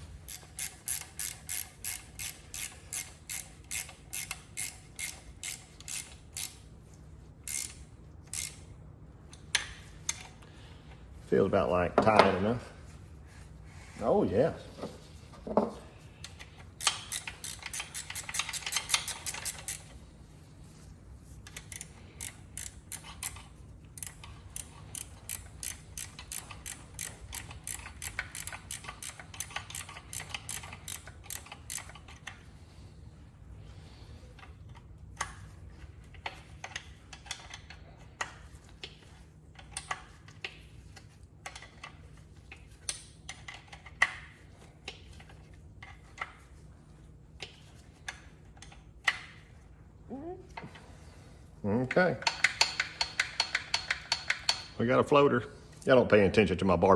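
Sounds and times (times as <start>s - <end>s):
socket ratchet clicking: 0.2s - 6.6s, 7.4s - 8.7s, 16.3s - 20.0s, 21.4s - 32.4s, 52.2s - 54.8s.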